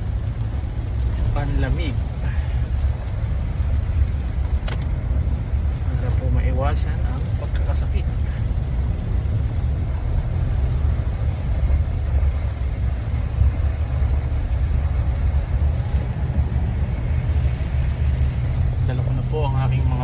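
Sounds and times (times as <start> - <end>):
car engine and tyres rumbling: 0.0 - 20.0.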